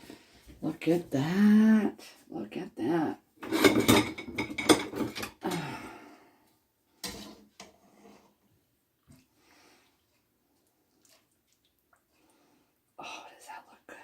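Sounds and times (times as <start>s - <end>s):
metal pot lid clattering: 3.4s - 5.4s.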